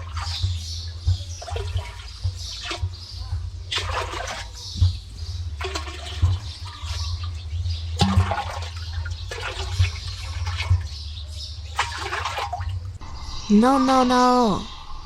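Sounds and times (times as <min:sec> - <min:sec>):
water splashing and gushing: 0:00.0 - 0:11.0, 0:11.6 - 0:13.0
continuous low rumble: 0:00.0 - 0:13.6.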